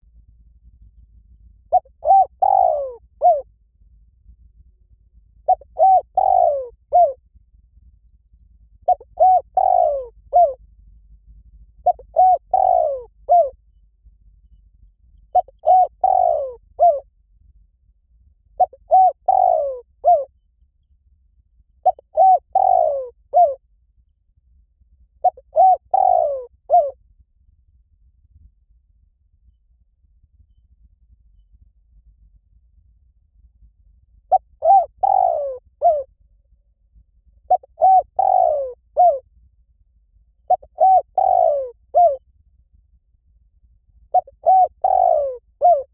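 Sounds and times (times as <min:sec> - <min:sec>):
dove cooing: 0:01.7 - 0:03.5, 0:05.5 - 0:07.2, 0:08.8 - 0:10.6, 0:11.8 - 0:13.6, 0:15.3 - 0:17.0, 0:18.6 - 0:20.3, 0:21.8 - 0:23.6, 0:25.2 - 0:27.0, 0:34.3 - 0:36.1, 0:37.5 - 0:39.2, 0:40.5 - 0:42.2, 0:44.1 - 0:45.9.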